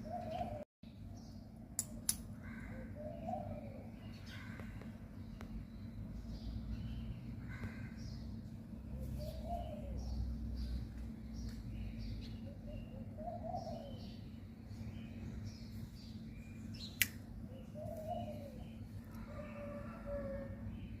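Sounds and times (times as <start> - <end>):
low cooing bird call: 0.0 - 0.7, 2.4 - 5.0, 8.9 - 10.9, 11.8 - 15.4, 16.4 - 21.0
birds chirping: 0.0 - 1.6, 2.4 - 21.0
steady low hum: 0.0 - 21.0
sharp click: 1.8 - 2.3, 17.0 - 17.2.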